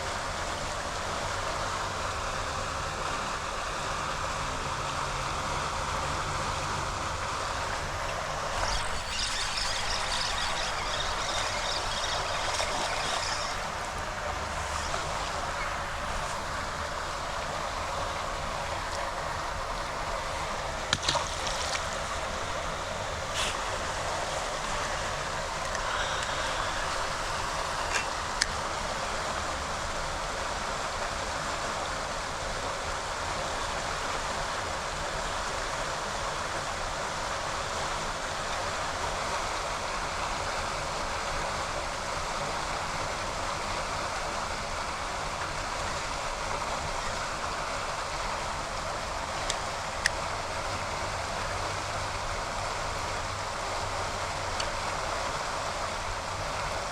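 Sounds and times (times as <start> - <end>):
floodwater rushing from drain: 7.6 - 28.6.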